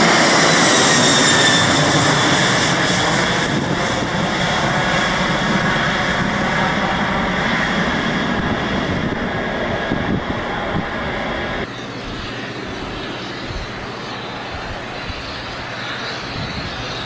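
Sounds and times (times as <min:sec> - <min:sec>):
airliner engines running: 0:00.0 - 0:17.0
thin high whine: 0:05.2 - 0:17.0.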